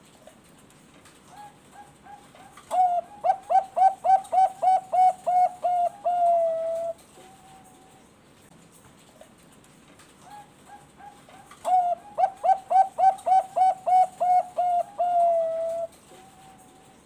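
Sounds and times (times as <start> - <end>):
dove cooing: 1.3 - 8.0, 10.3 - 17.0.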